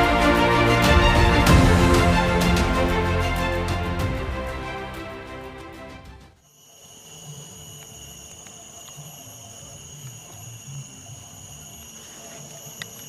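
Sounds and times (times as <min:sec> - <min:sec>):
insect chorus buzz-trill: 0:06.4 - 0:13.0.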